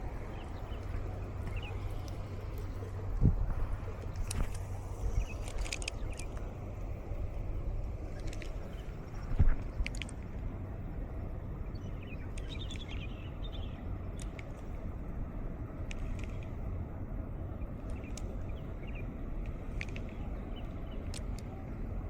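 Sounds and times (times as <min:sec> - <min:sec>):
faint ticks: 0:00.4 - 0:07.0, 0:12.2 - 0:14.9, 0:15.8 - 0:16.6, 0:17.7 - 0:21.6
bird twittering: 0:11.7 - 0:13.8.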